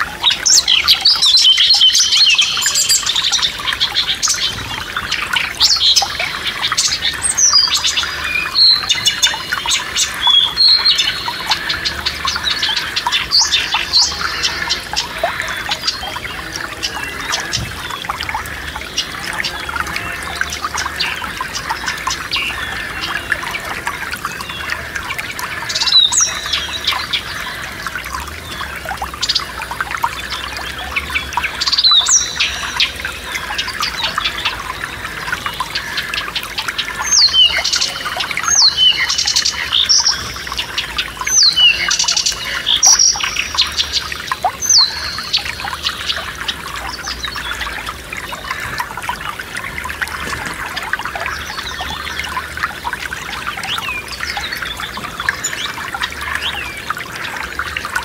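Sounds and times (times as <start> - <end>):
songbirds singing: 0.0 - 58.0
stream trickling: 0.0 - 58.0.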